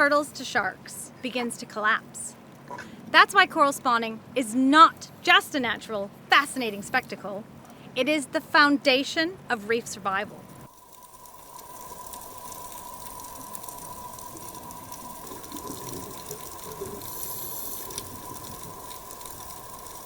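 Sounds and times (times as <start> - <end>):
faint constant tone: 0.0 - 20.0
rushing water hiss: 10.6 - 20.0.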